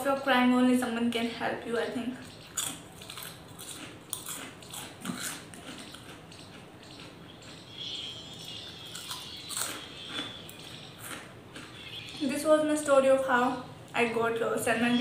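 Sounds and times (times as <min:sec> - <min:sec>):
chewing and lip smacking: 0:02.2 - 0:12.2.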